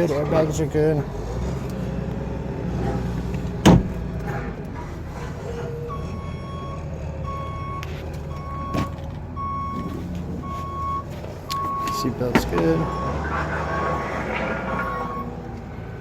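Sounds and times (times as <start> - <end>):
electronic warning beep: 5.9 - 12.1, 14.7 - 15.4.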